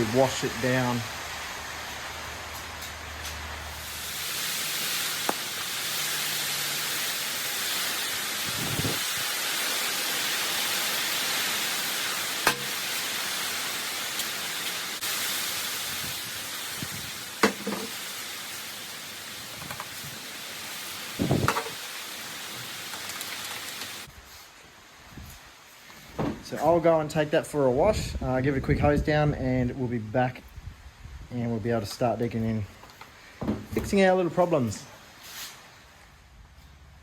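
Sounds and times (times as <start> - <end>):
spray hissing: 0.0 - 24.1.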